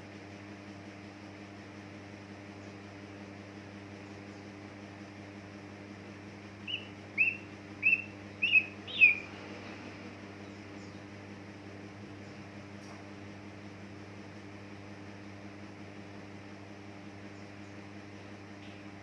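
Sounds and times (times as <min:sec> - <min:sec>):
low electrical hum: 0:00.0 - 0:19.0
bird chirping: 0:06.7 - 0:09.3.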